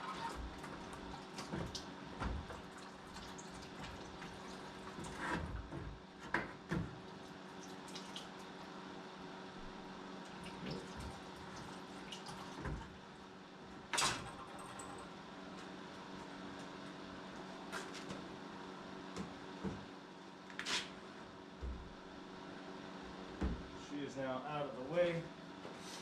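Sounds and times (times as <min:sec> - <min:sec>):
coolant dripping and trickling: 0:00.0 - 0:05.7, 0:07.2 - 0:08.6, 0:10.3 - 0:13.0
steady low hum: 0:08.6 - 0:26.0.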